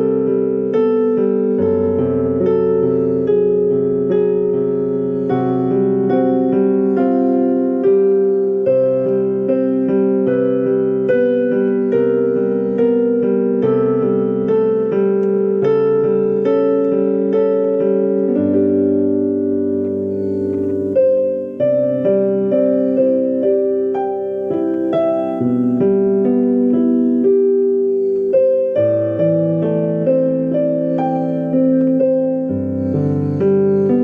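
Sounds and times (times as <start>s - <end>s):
solo piano melody: 0.0s - 34.0s.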